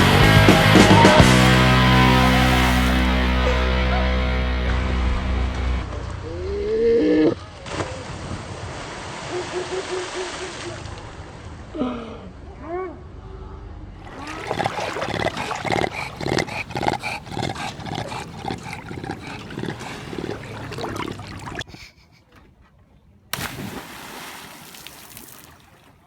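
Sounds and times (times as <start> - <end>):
animal calling: 14.0 - 21.6.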